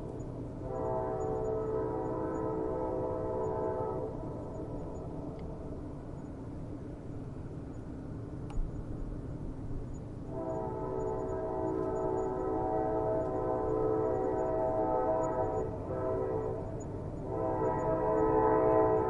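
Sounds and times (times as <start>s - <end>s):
train rumbling on rails: 0.0s - 19.0s
train horn: 0.6s - 4.6s, 10.3s - 19.0s
faint click: 8.4s - 8.7s.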